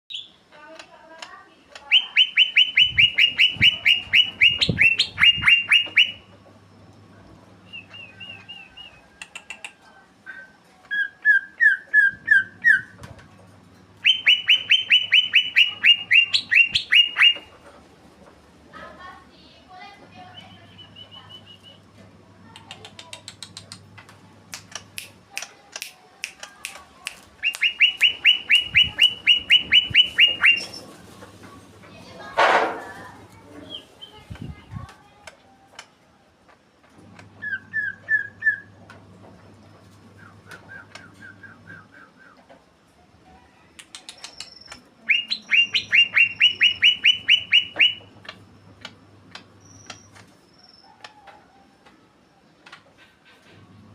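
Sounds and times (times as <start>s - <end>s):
bird chips and clicks: 0.1s - 6.3s, 14.0s - 17.6s, 22.5s - 31.2s, 43.8s - 51.2s
bird downslurred whistles: 1.9s - 6.2s, 27.4s - 30.8s, 44.3s - 48.0s.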